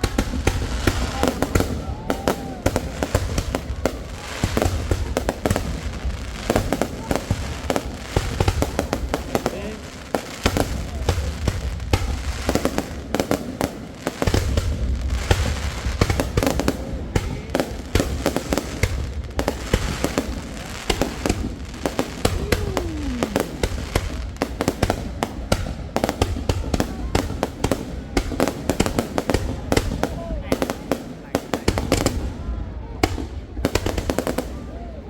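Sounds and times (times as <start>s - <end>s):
fireworks booming: 0.0s - 34.9s
fireworks crackling and popping: 0.0s - 34.9s
falling firework whistle: 22.2s - 24.2s.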